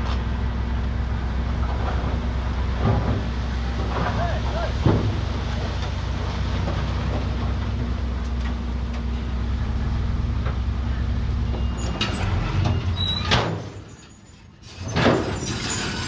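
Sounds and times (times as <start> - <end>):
bulldozer diesel engine running: 0.0 - 14.6.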